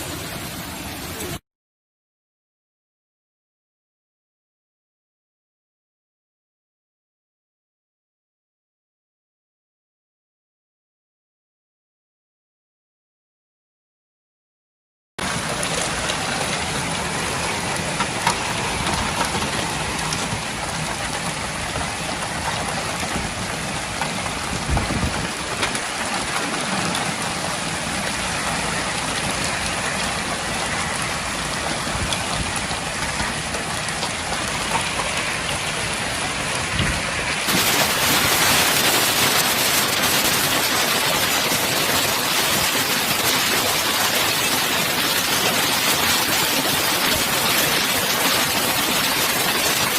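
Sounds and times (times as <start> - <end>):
hail and rain pelting: 15.2 - 49.9.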